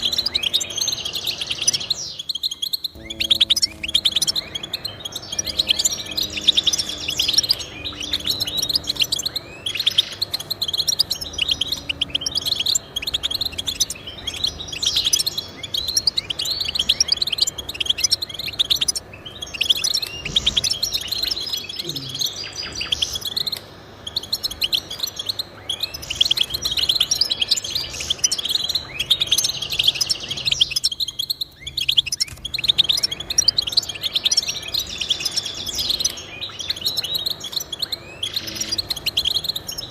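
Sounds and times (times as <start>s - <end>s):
finch twittering and trilling: 0.0s - 39.9s.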